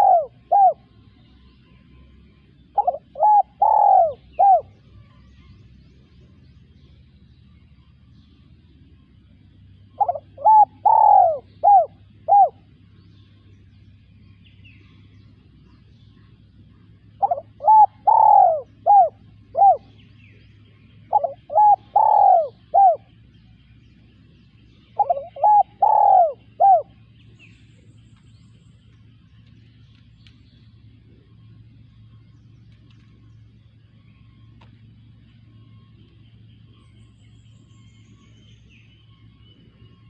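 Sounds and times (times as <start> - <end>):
dove cooing: 0.0 - 1.1, 2.6 - 4.8, 9.9 - 12.8, 16.7 - 23.2, 24.8 - 27.2.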